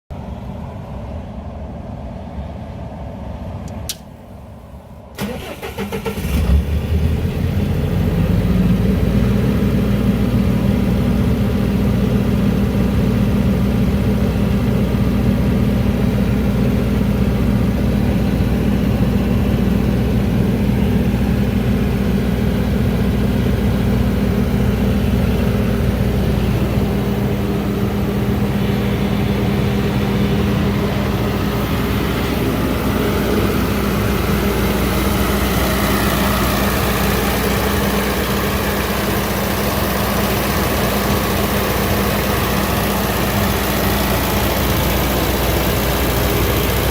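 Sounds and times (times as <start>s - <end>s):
diesel generator running: 0.2s - 46.9s
generator starter cranking: 5.2s - 6.6s
low hum: 8.6s - 46.9s.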